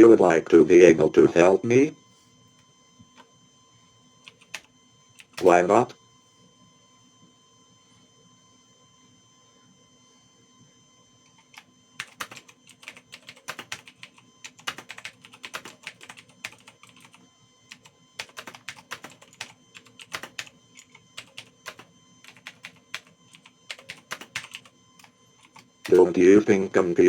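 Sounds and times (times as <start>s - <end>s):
typing on a keyboard: 4.2s - 5.6s, 11.4s - 26.1s.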